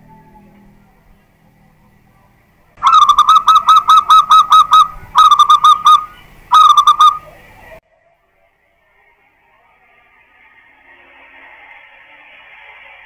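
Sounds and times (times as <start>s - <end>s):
dove cooing: 2.8s - 7.4s.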